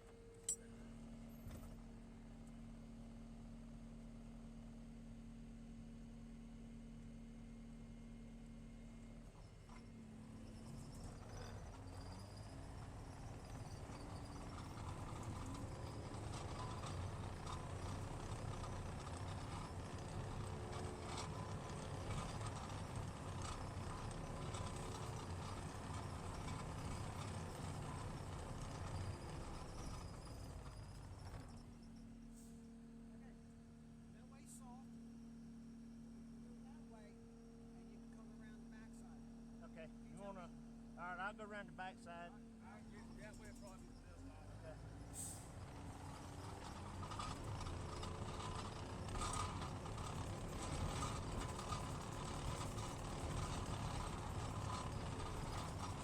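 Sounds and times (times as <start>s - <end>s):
vehicle engine rumbling: 9.7s - 32.4s, 42.4s - 56.0s.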